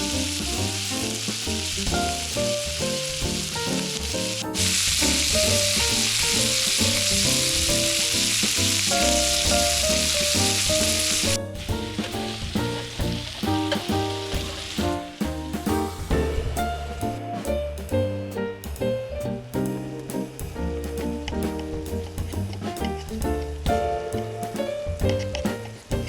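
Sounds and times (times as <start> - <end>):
steak sizzling on grill: 0.0 - 17.2
background music: 0.0 - 25.3.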